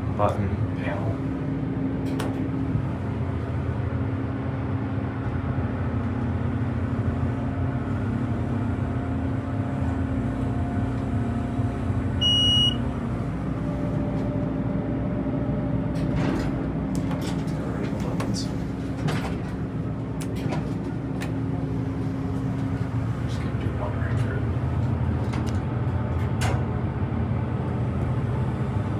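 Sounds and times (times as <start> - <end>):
elevator hydraulic hum: 0.0 - 28.9
electronic beep: 12.2 - 12.8.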